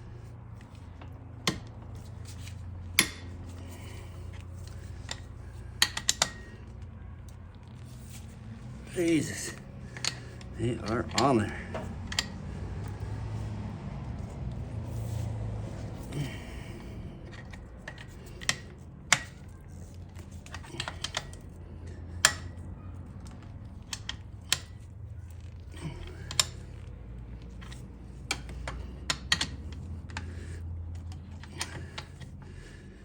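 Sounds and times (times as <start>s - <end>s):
steady low hum: 0.0s - 33.0s
metallic clicks of hand tools: 0.8s - 6.9s, 9.0s - 13.1s, 16.1s - 24.8s, 25.5s - 32.5s.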